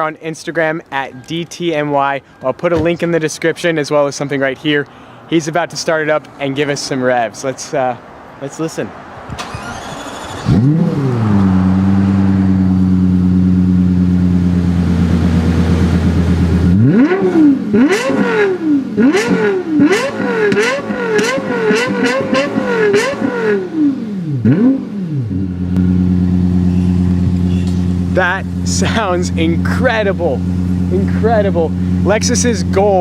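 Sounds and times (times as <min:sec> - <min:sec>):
car engine starting: 0:09.2 - 0:33.0
engine revving: 0:09.3 - 0:33.0
car engine idling: 0:09.4 - 0:19.2, 0:20.9 - 0:33.0.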